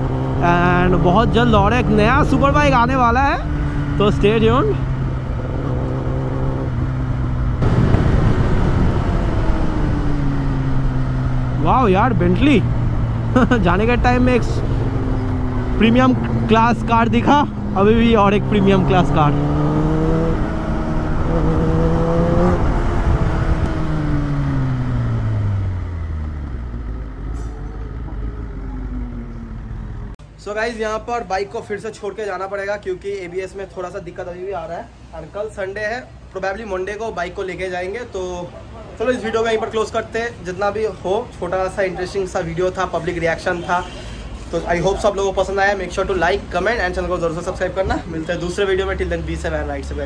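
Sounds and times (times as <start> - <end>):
motorcycle engine running: 0.0 - 30.2
road noise: 0.0 - 50.0
wind rumble on microphone: 5.0 - 10.7, 19.4 - 24.3.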